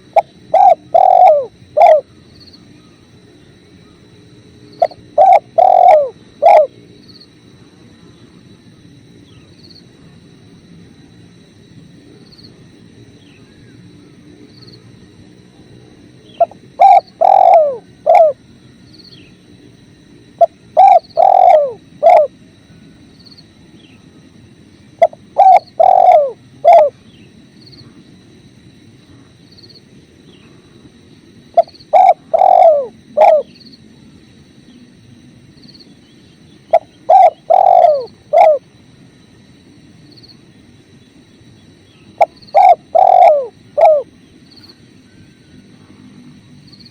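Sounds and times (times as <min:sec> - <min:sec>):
dove cooing: 0:00.0 - 0:03.0, 0:04.7 - 0:06.9, 0:16.2 - 0:18.5, 0:20.4 - 0:22.4, 0:24.9 - 0:27.0, 0:31.5 - 0:33.6, 0:36.6 - 0:38.7, 0:41.9 - 0:44.2.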